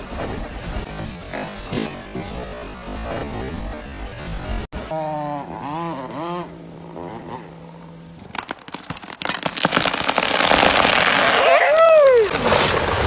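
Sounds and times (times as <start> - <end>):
steady low hum: 0.0 - 9.0
wood cracking and snapping: 8.2 - 13.0.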